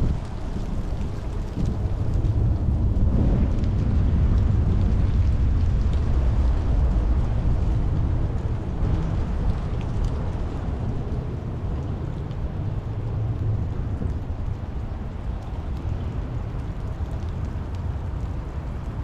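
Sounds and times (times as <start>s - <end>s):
deep low rumble: 0.0s - 19.0s
rain falling: 0.0s - 19.0s.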